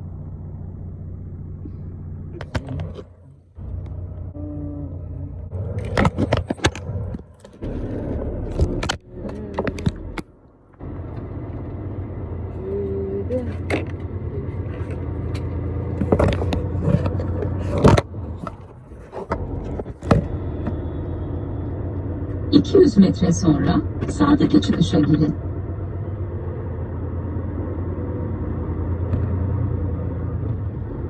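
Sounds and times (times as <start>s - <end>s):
truck engine drone: 0.0s - 31.0s
sharp clicks and knocks: 2.4s - 3.1s, 5.7s - 11.3s, 14.9s - 20.8s.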